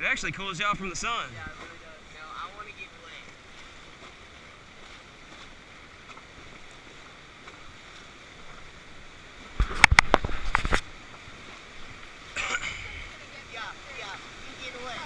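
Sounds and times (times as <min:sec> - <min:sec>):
rushing river water: 0:00.0 - 0:15.0
sharp knocks and crackles: 0:09.5 - 0:10.9.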